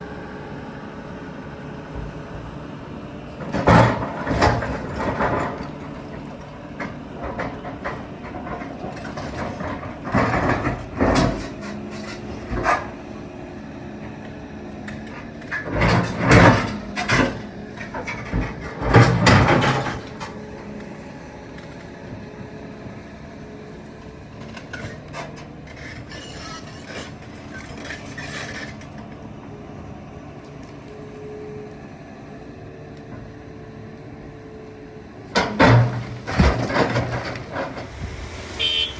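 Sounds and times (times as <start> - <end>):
excavator diesel engine running: 0.0 - 38.9
rocks crashing on steel: 35.4 - 38.0.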